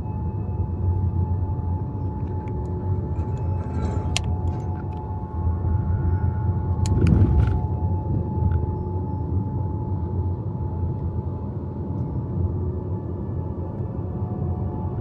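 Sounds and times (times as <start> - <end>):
road and tyre rumble: 0.8 - 8.8.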